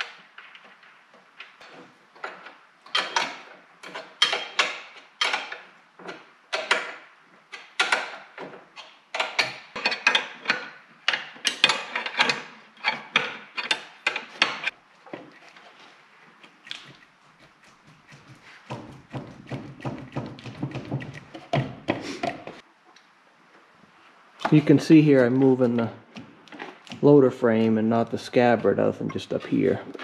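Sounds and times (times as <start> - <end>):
hand tools clicking on metal: 1.5 - 14.8.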